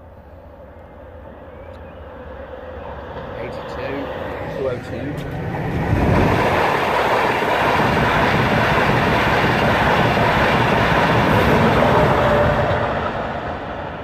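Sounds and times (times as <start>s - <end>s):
express train passing: 0.0s - 14.0s
wheels rushing on rail: 0.0s - 14.0s.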